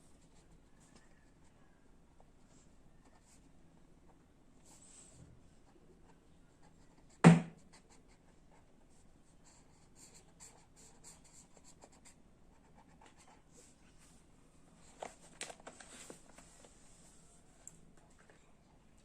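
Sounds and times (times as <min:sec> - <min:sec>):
sharp knock: 0:07.2 - 0:07.6.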